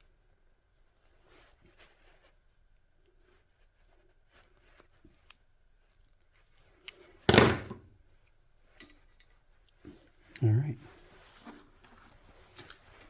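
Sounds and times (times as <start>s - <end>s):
tools clicking and rustling on workbench: 7.3s - 7.8s.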